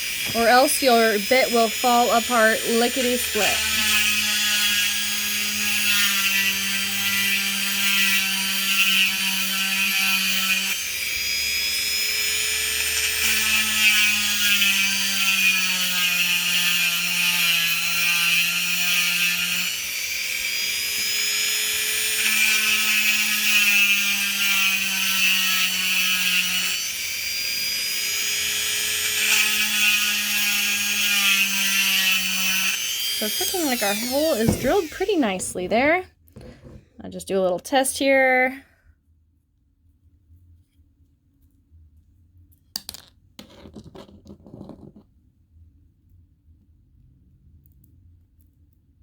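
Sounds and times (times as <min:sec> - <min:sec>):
rotary tool grinding stone: 0:00.0 - 0:36.8.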